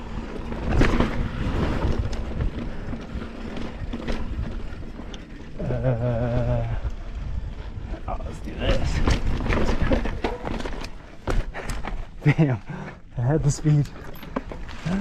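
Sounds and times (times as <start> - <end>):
wind buffeting microphone: 0.0 - 10.6
mountain bike rumbling and rattling: 0.0 - 15.0.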